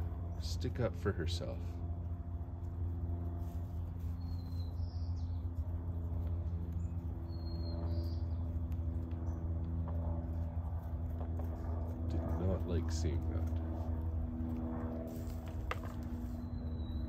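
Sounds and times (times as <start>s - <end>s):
low mechanical hum: 0.0s - 17.0s
high bird chirps: 6.8s - 8.4s, 16.3s - 17.0s.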